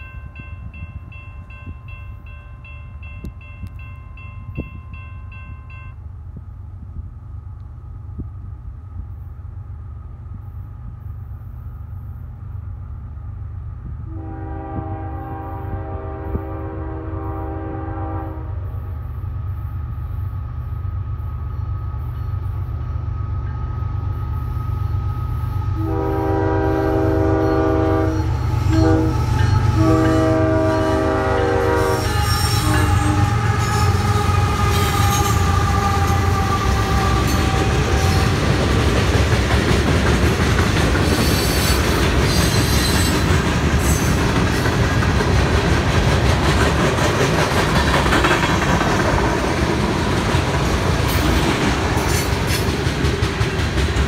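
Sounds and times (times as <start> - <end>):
diesel locomotive rumble: 0.0 - 54.0
train horn blasts: 14.0 - 18.9, 25.7 - 38.6
wheels clattering on rail: 27.2 - 54.0.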